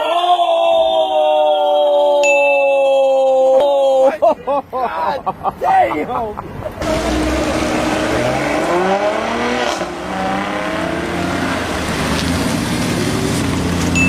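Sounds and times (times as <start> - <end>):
car engine revving: 6.8 - 14.0.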